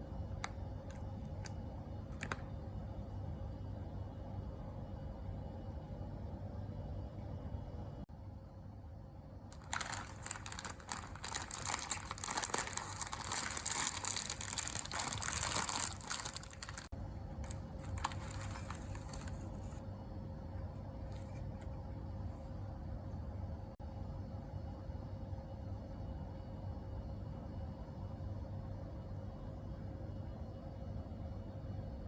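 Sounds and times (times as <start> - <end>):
plastic packaging crinkling: 2.1 - 2.4, 9.5 - 19.8, 21.1 - 21.7.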